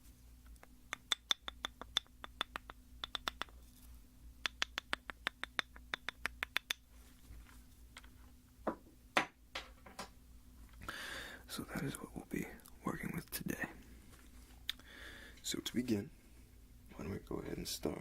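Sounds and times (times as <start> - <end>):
comb teeth clicking: 0.4 - 3.6.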